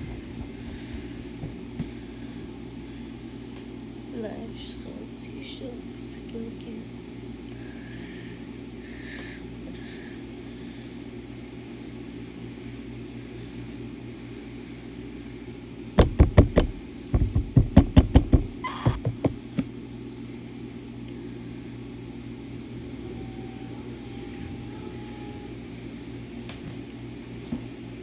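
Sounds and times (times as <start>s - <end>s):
steady low hum: 0.0s - 28.0s
sharp knocks: 16.0s - 19.4s.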